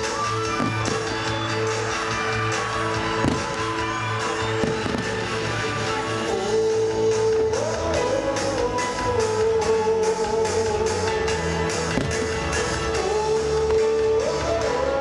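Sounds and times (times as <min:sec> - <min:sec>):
fireworks booming and crackling: 0:00.0 - 0:06.4, 0:11.3 - 0:12.8
pop-rock music over loudspeakers: 0:00.0 - 0:15.0.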